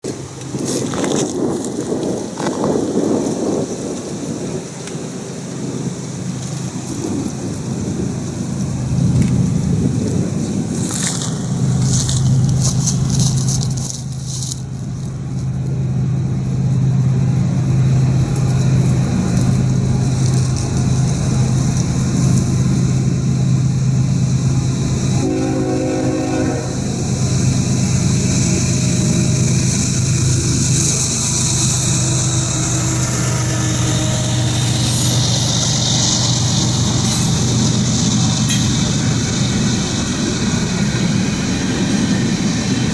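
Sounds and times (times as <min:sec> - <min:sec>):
diesel locomotive engine drone: 0:00.0 - 0:42.9
hiss of wheels on rail: 0:00.0 - 0:42.9
crackling rattling noise: 0:06.2 - 0:25.1.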